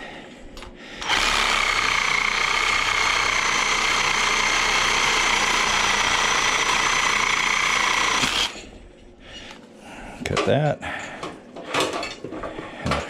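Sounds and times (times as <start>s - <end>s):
electric power saw whining: 1.0s - 8.7s.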